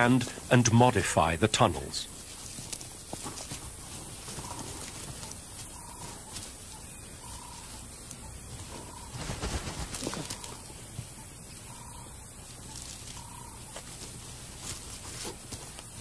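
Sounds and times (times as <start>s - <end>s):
dogs digging in soil: 2.1s - 10.7s, 12.4s - 16.0s
faint bird calls: 2.2s - 16.0s.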